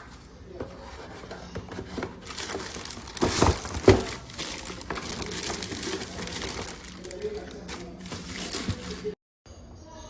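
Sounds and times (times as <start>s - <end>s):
packaging crinkling: 1.7s - 9.2s.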